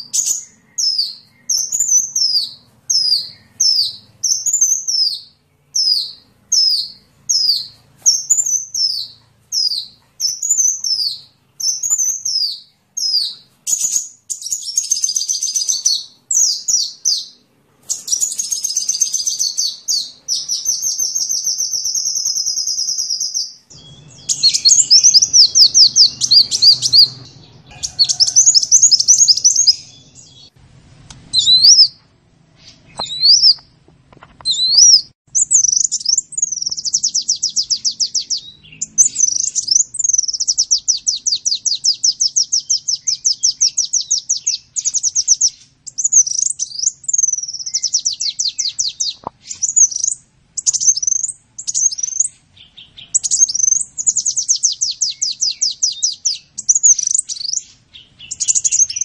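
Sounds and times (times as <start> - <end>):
short bird chirps: 0.0 - 30.5, 31.3 - 33.6, 34.4 - 59.0
sunbird trilling song: 0.0 - 30.6, 31.2 - 33.7, 34.4 - 59.0.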